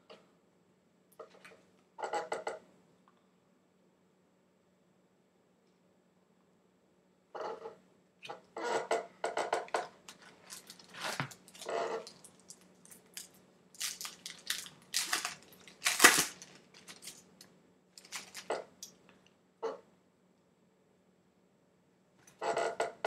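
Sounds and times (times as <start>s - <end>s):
foil wrapper crinkling and tearing: 10.2s - 18.6s.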